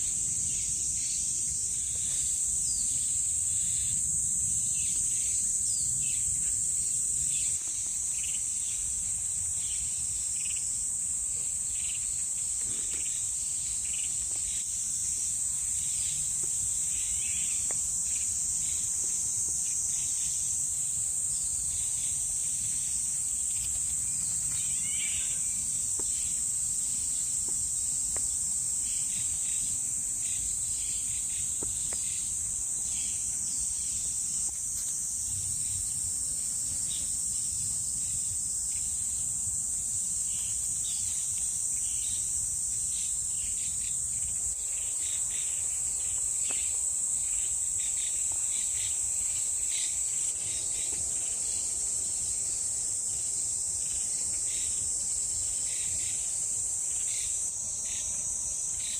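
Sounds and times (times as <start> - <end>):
insects droning: 0.0 - 58.9.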